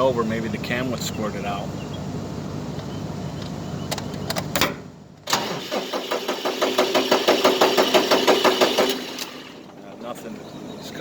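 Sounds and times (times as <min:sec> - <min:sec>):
starter motor cranking engine: 0:05.3 - 0:10.0.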